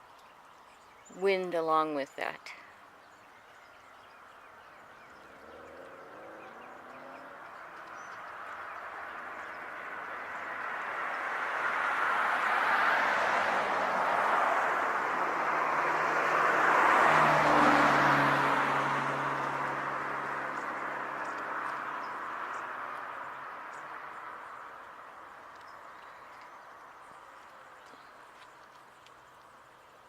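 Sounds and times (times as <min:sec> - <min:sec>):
car passing by: 0:04.1 - 0:28.7.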